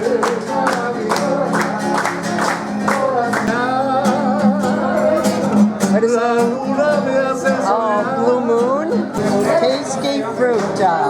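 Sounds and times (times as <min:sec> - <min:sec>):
person singing: 0:00.0 - 0:11.0
strummed guitar: 0:00.0 - 0:11.0.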